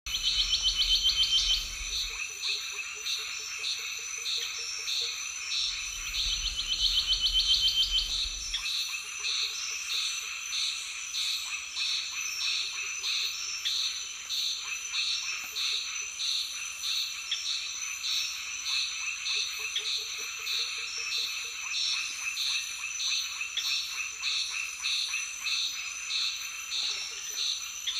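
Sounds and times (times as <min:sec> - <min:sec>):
low rumble: 0:00.1 - 0:02.2, 0:05.6 - 0:08.6
insects high drone: 0:00.1 - 0:10.7
frogs pulsing call: 0:00.1 - 0:27.9.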